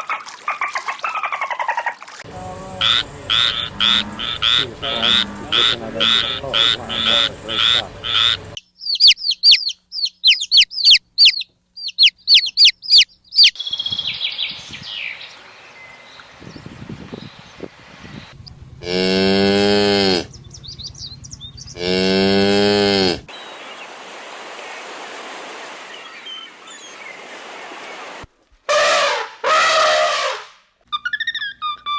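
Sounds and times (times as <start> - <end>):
croaking calls: 2.3 - 8.6, 18.3 - 23.3
high falling bird chirps: 2.3 - 14.6, 18.2 - 23.3.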